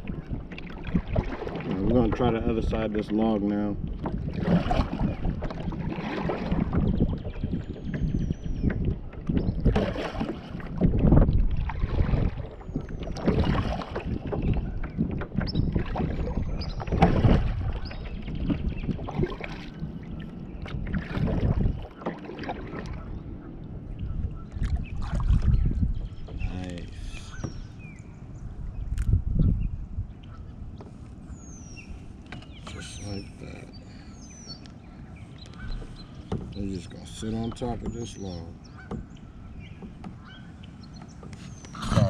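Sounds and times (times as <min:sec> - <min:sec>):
paddle swishing and splashing: 0:00.0 - 0:28.0
wind rumbling on microphone: 0:00.0 - 0:42.0.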